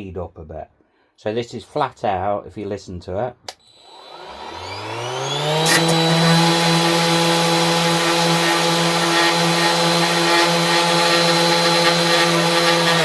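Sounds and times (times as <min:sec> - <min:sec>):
orbital sander motor hum: 0:03.6 - 0:13.0.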